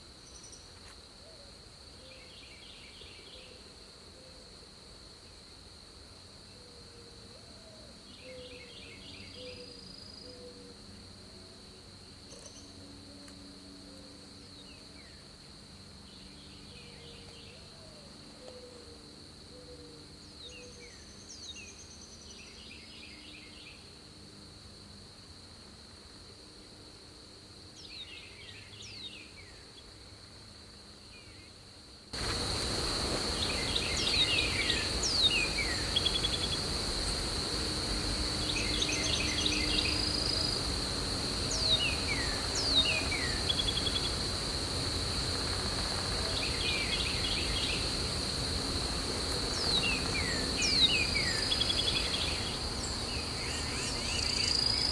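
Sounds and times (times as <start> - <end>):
high-pitched insect drone: 32.2 - 54.9.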